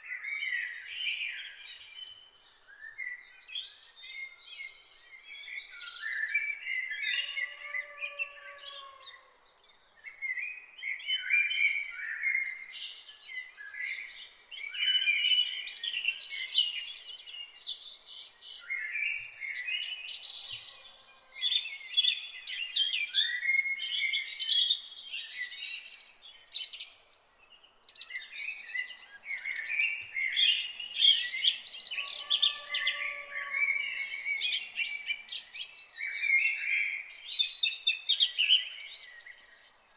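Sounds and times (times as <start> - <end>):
songbirds chirping and singing: 0.0 - 39.9
lower longer bird call: 31.7 - 34.4.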